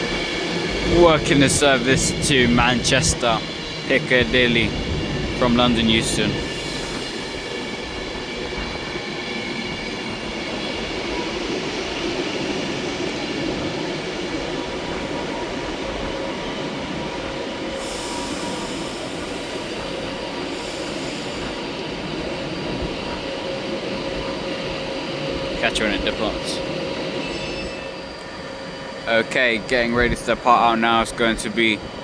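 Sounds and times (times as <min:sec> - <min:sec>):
electric train rumbling: 0:00.0 - 0:32.0
high hiss: 0:17.8 - 0:21.6.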